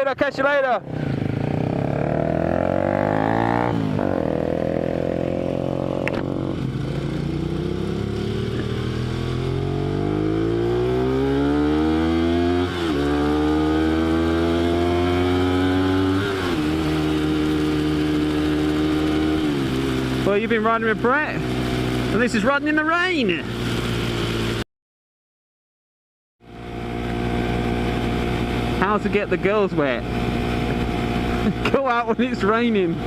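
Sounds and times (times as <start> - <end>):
motorcycle engine accelerating: 0.8 - 24.6, 26.4 - 33.0.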